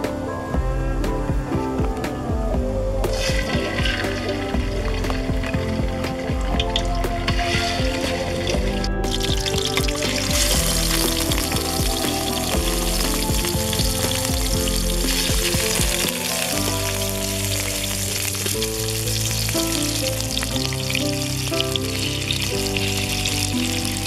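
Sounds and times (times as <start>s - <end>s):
background music: 0.0s - 24.0s
fish sizzling in hot oil: 9.2s - 24.0s.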